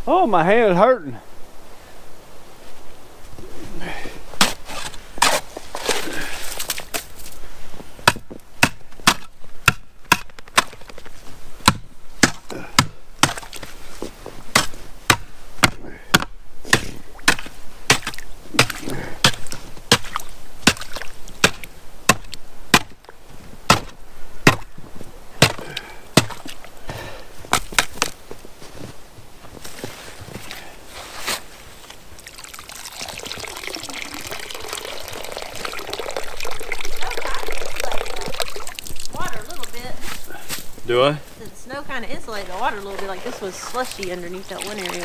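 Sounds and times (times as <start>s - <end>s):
ice cracking under strikes: 4.4s - 7.4s, 8.0s - 13.8s, 14.5s - 23.1s, 23.7s - 24.8s, 25.4s - 26.7s, 27.5s - 28.2s.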